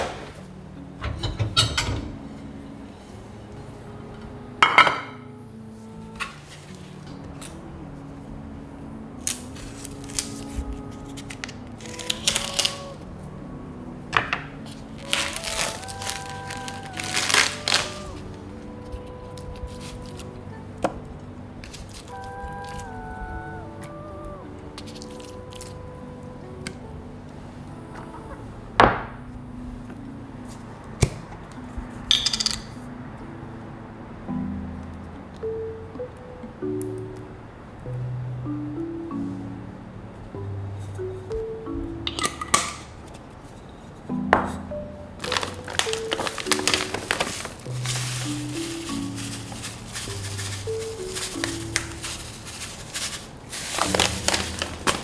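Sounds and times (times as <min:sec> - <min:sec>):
soft instrumental music: 0:00.0 - 0:55.0
crinkling rustling handling noises: 0:05.7 - 0:08.3, 0:09.1 - 0:24.0, 0:24.6 - 0:27.6, 0:40.4 - 0:55.0.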